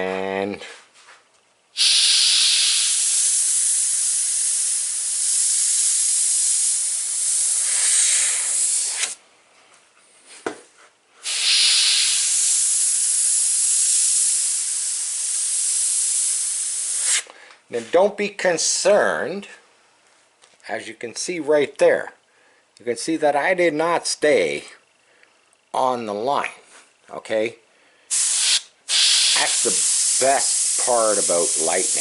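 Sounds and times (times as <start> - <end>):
airbrush hissing: 1.8 - 9.2, 11.2 - 17.3, 28.1 - 32.0.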